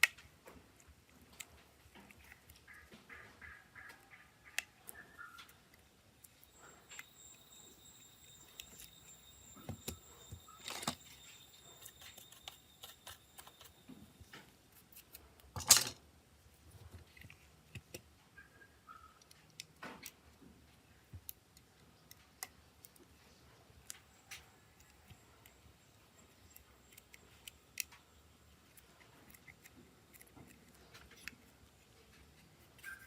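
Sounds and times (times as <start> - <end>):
tools clicking and tapping: 3.9 - 16.0
faint high tone: 6.2 - 14.4.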